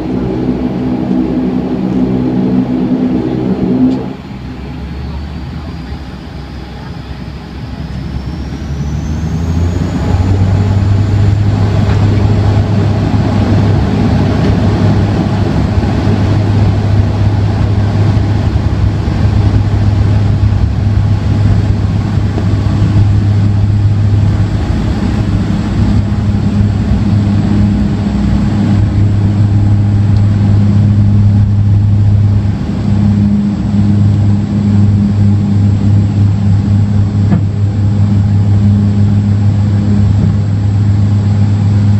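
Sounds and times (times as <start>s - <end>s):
propeller drone: 0.0s - 41.9s
turbine whine: 0.0s - 41.9s.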